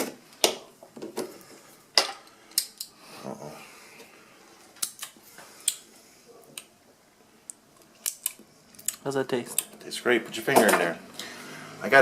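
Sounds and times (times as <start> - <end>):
plastic caps clicking: 7.5 - 9.8.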